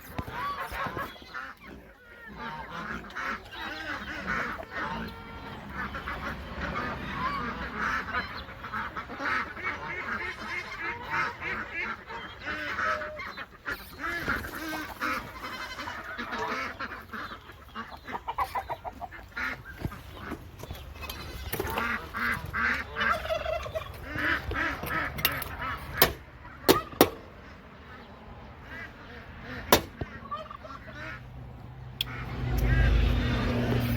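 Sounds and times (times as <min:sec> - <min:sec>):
geese honking: 0:00.0 - 0:33.9
sharp knocks: 0:26.0 - 0:27.2, 0:29.7 - 0:30.1.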